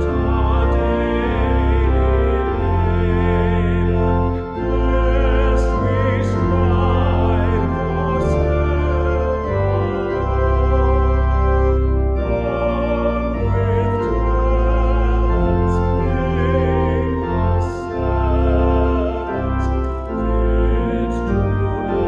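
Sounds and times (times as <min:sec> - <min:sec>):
church organ playing hymn: 0:00.0 - 0:22.0.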